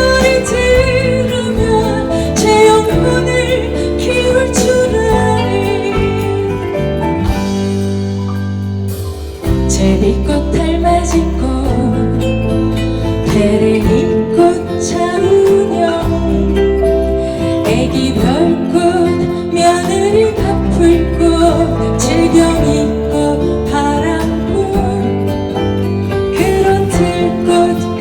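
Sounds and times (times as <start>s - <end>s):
person singing: 0.0s - 7.2s, 9.7s - 25.4s, 26.3s - 28.0s
acoustic guitar: 0.0s - 28.0s.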